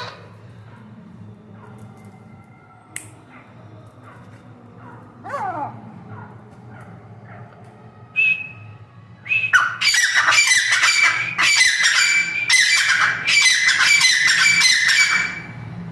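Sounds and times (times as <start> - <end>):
francolin squawking calls: 9.6 - 15.5.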